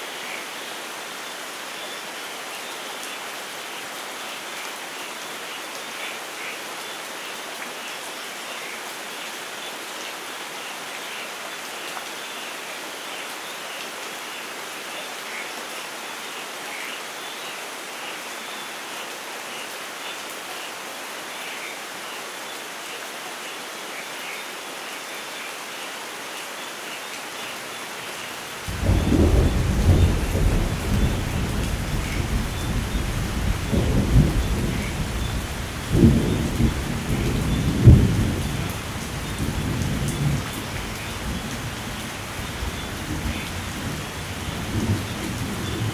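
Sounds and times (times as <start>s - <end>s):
steady rain falling: 0.0s - 45.9s
deep thunder rumble: 28.7s - 41.8s.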